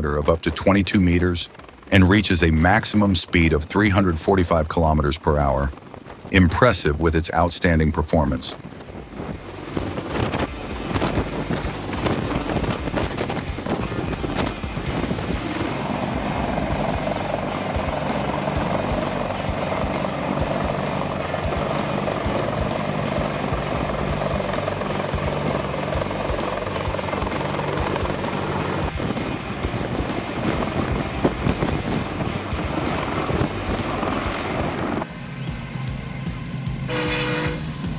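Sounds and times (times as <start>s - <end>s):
helicopter rotor and turbine drone: 0.0s - 37.9s
music: 9.4s - 37.9s.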